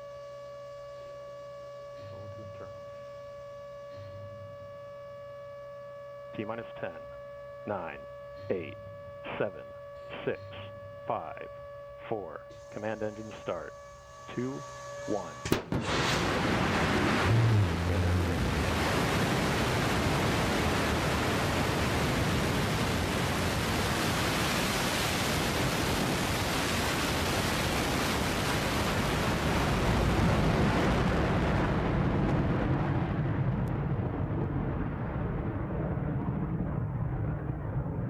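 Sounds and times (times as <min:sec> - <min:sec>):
rocket engine roaring: 0:12.1 - 0:38.0.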